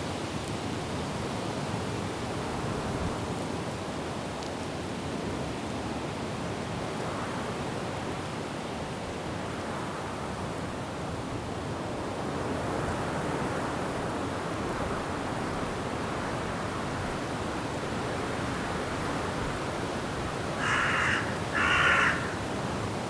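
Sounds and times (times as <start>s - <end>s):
wind through trees: 0.0s - 23.0s.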